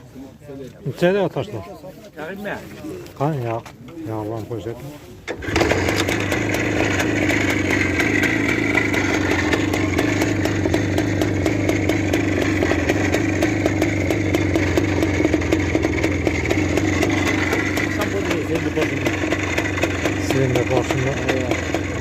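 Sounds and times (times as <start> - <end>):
motorcycle engine running: 5.4 - 22.0.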